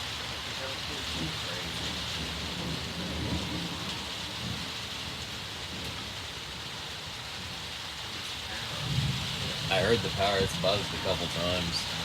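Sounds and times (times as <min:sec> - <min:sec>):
rain hissing: 0:00.0 - 0:12.0
low thunder rumble: 0:01.1 - 0:06.2, 0:08.5 - 0:12.0.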